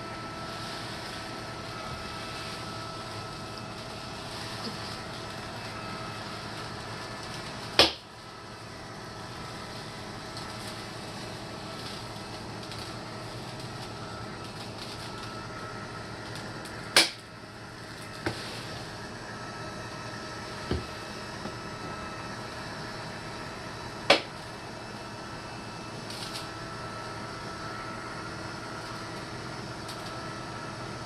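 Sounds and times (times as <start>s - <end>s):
litter box motor humming: 0.0s - 31.0s
loud sharp pops: 7.8s - 8.0s, 17.0s - 17.2s, 24.1s - 24.4s.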